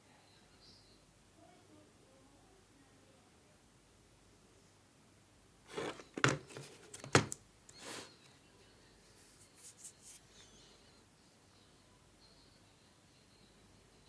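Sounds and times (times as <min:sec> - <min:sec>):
packaging rustling: 0:05.7 - 0:08.1.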